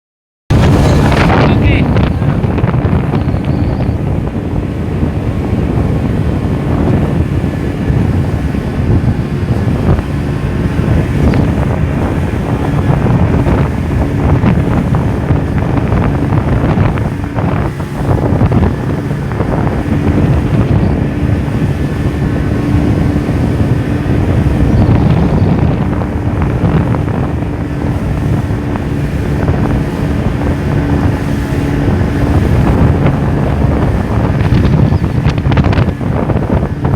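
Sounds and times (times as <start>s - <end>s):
boat engine running: 0.5s - 36.9s
water rushing past hull: 0.5s - 36.9s
wind buffeting microphone: 0.5s - 36.9s.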